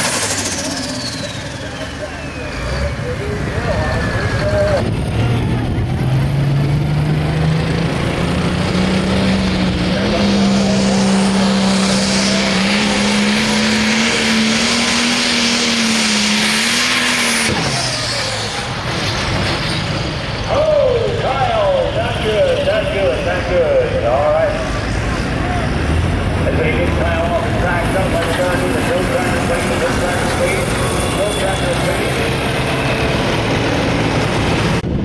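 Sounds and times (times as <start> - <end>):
diesel tractor engine under load: 0.0 - 35.0.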